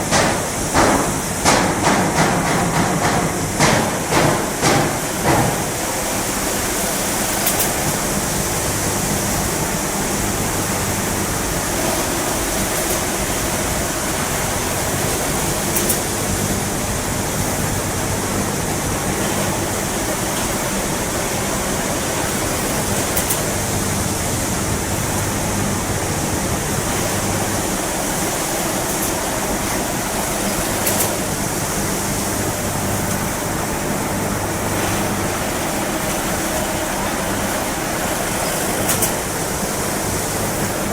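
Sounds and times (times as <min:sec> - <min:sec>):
mechanical knocks and clatter: 0:00.0 - 0:05.8, 0:38.4 - 0:39.3
low mechanical hum: 0:00.0 - 0:40.9.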